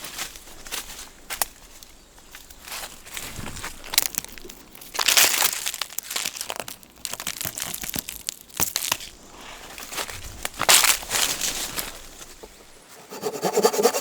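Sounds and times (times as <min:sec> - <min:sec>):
crinkling and crunching rustles: 0:00.0 - 0:13.0.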